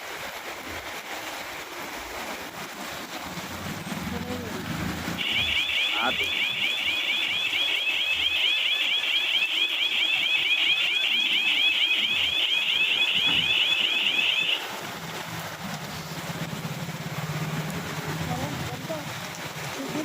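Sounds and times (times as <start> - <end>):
electronic alarm warbling: 5.1 - 14.6.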